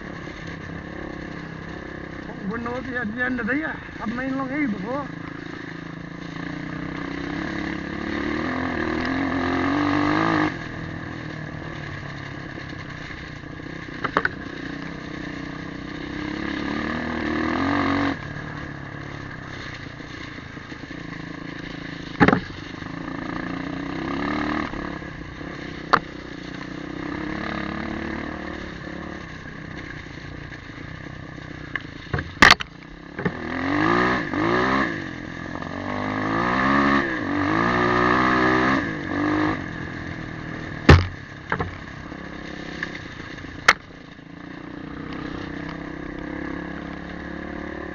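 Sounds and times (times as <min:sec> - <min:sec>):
motorcycle engine revving: 0:00.0 - 0:47.9
sharp knocks: 0:40.9 - 0:41.7.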